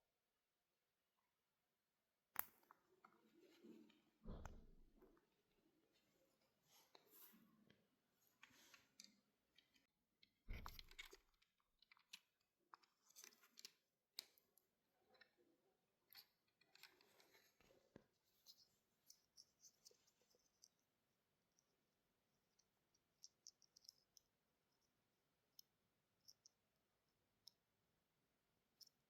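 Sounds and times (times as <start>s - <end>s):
small objects clicking and rustling: 8.7s - 14.4s.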